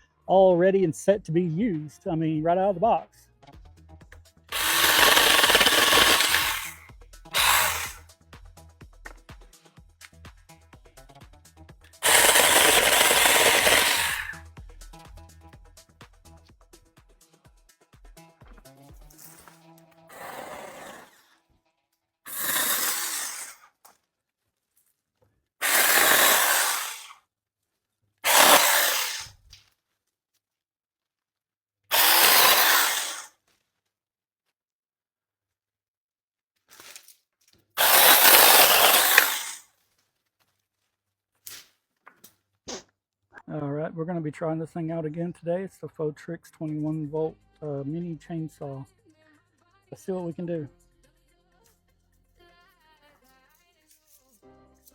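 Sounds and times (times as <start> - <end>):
mini chainsaw cutting wood: 4.5 - 8.0, 12.0 - 14.4, 19.1 - 21.2, 22.3 - 23.6, 25.6 - 27.2, 28.2 - 29.4, 31.9 - 33.3, 37.8 - 39.6.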